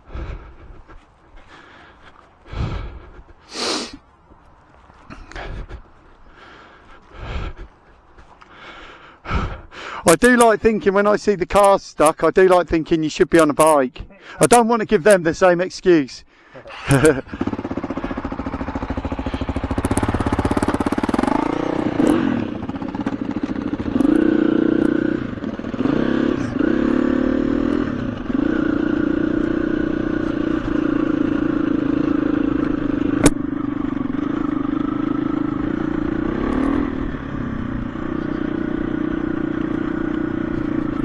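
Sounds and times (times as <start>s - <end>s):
dirt bike engine revving: 16.8s - 41.0s.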